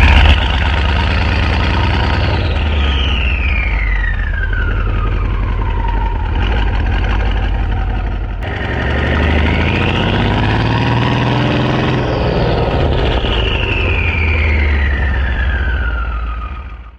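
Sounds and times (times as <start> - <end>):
engine idle rumble: 0.0 - 10.0
high wailing tone: 1.7 - 7.2, 8.4 - 16.9.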